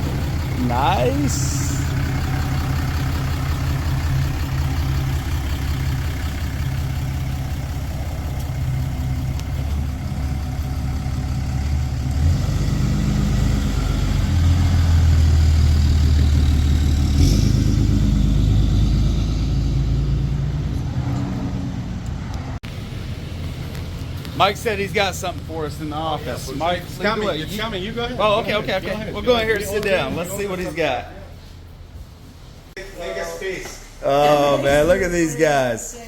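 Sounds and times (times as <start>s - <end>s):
pickup truck engine running: 0.0s - 20.8s.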